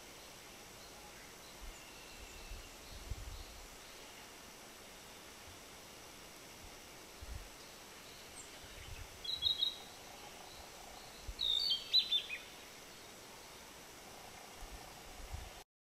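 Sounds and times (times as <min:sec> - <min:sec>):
steady background hiss: 0:00.0 - 0:15.6
bird chirping: 0:00.1 - 0:04.4, 0:07.6 - 0:13.8.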